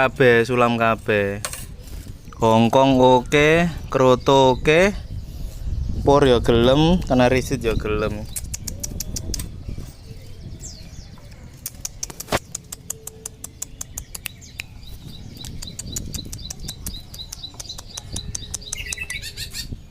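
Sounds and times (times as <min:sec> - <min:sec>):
sparrow chirping: 0:00.0 - 0:19.9
sharp click: 0:11.6 - 0:14.8.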